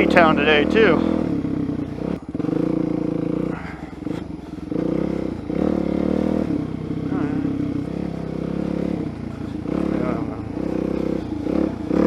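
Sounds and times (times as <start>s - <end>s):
motorcycle engine under throttle: 0.0s - 12.0s.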